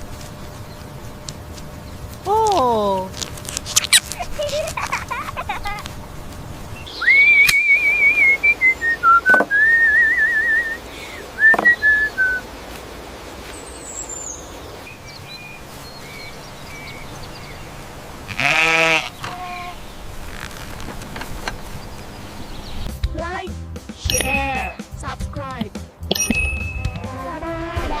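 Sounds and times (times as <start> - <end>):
faint chirps: 1.7 - 5.8, 6.7 - 12.4, 13.4 - 18.0
warbling whistled tune: 6.8 - 12.4, 24.0 - 24.9, 26.1 - 27.1
lamb bleating: 18.3 - 19.9, 24.2 - 24.8.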